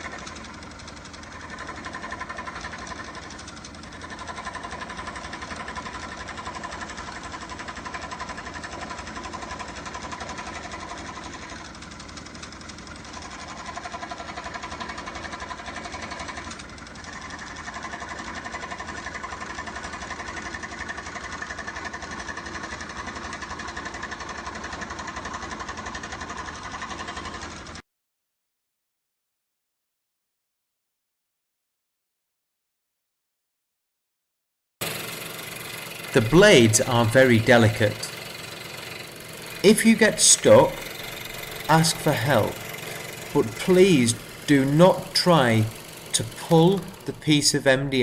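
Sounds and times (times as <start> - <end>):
scroll saw cutting: 34.8 - 48.0.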